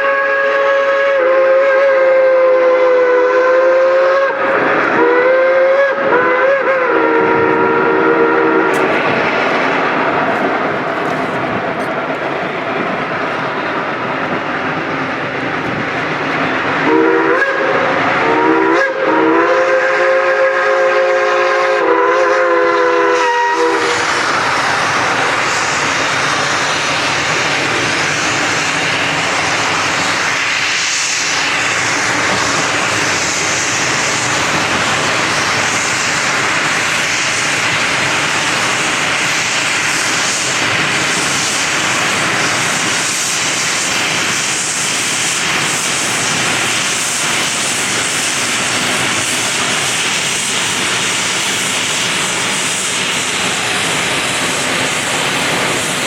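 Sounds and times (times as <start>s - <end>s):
steam locomotive whistle: 0.0s - 9.7s, 16.7s - 24.3s
train rushing noise: 0.0s - 56.0s.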